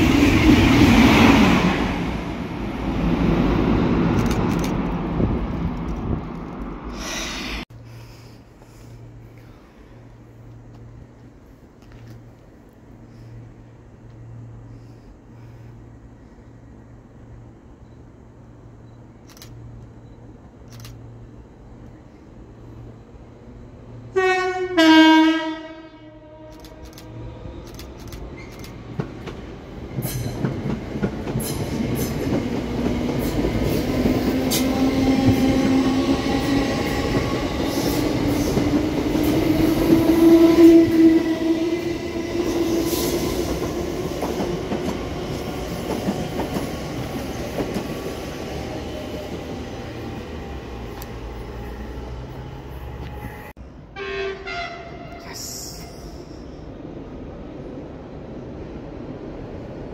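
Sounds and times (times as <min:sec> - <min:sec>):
train running past humming: 0:00.0 - 0:59.9
two-tone train horn: 0:24.1 - 0:27.3, 0:40.1 - 0:41.8, 0:53.0 - 0:55.5.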